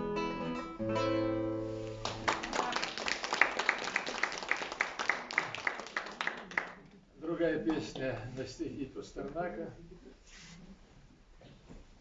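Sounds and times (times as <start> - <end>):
acoustic guitar chord ringing: 0.0 - 2.3
audience applauding: 2.0 - 6.8.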